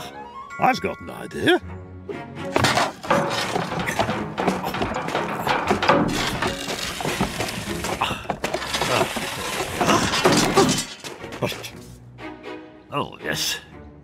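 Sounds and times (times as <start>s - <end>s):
cartoon clattering and crashing: 2.5s - 11.3s.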